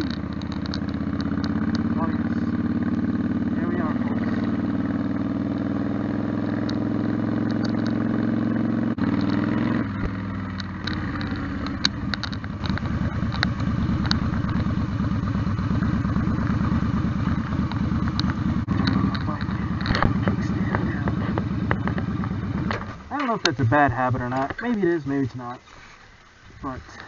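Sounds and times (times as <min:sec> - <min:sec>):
motorcycle engine at low speed: 0:00.0 - 0:25.3.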